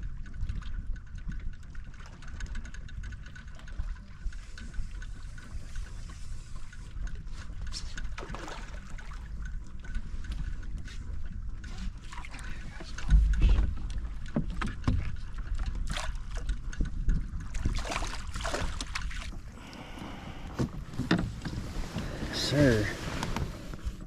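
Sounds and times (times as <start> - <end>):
water splashing: 8.2 - 9.4, 17.4 - 20.5
knocks and bumps on kayak: 12.9 - 15.2.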